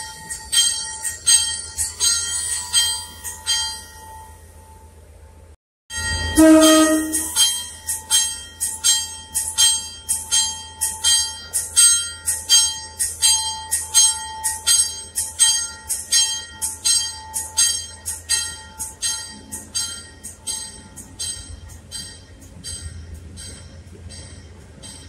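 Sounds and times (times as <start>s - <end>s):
bell ringing: 5.9s - 25.0s
train horn toot: 6.1s - 7.5s.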